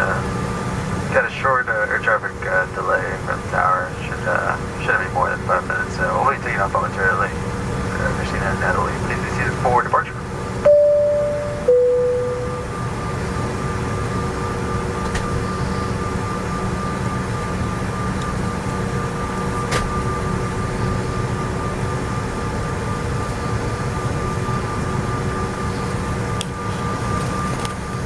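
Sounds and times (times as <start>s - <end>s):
jet engine cabin drone: 0.0s - 28.0s
engine whine tones: 10.6s - 28.0s
cabin chime: 10.7s - 12.8s.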